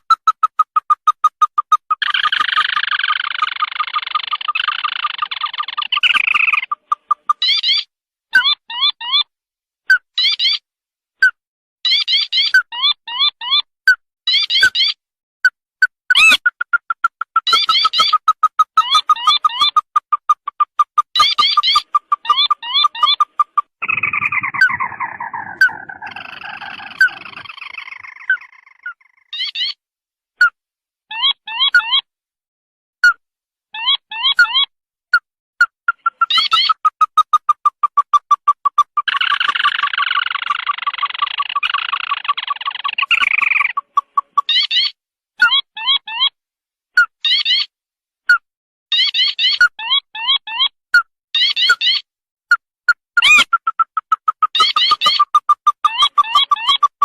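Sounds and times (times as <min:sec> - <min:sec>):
sharp rising chirps: 0:16.1 - 0:29.2, 0:35.9 - 0:44.5
bird rattling chorus: 0:16.2 - 0:29.3, 0:35.9 - 0:44.6
bird short rising notes: 0:21.2 - 0:29.2.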